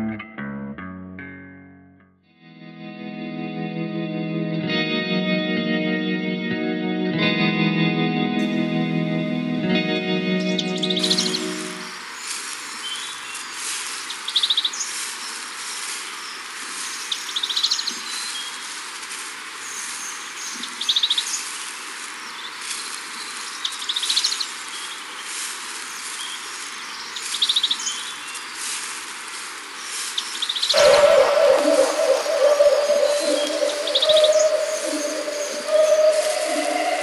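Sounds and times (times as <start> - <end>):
background hiss: 8.4 - 37.0
bird rapid high notes: 10.4 - 11.9, 30.7 - 37.0
faint bird chirps: 30.2 - 37.0.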